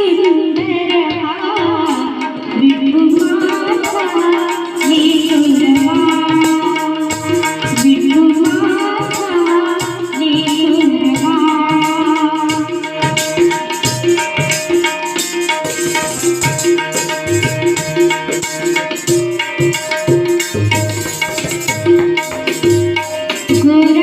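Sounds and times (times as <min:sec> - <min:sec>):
tabla rhythm: 0:00.0 - 0:24.0
sustained instrumental melody: 0:12.2 - 0:24.0.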